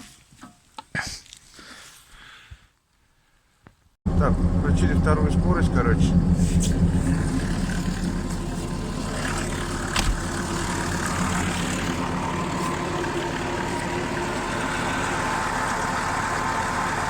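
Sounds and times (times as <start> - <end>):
car engine running: 4.1 - 17.0.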